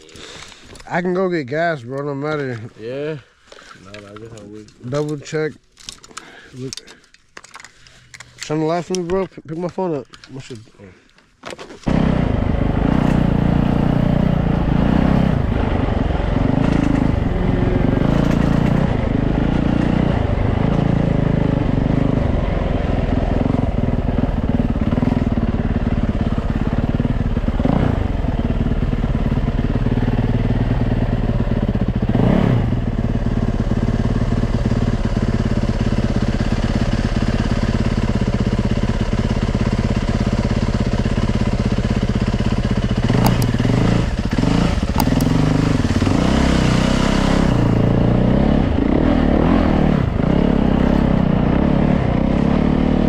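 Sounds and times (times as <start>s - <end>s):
dirt bike engine revving: 11.9s - 53.0s.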